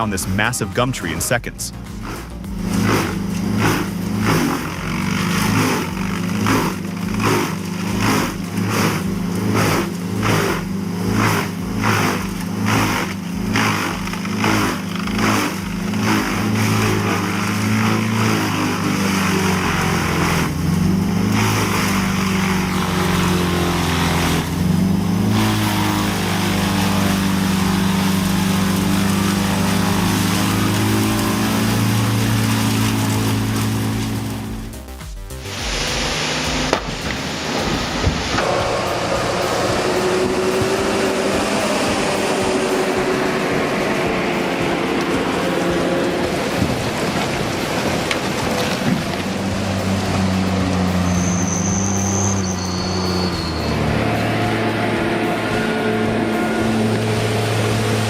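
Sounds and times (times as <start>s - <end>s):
wood chipper engine running: 0.0s - 58.0s.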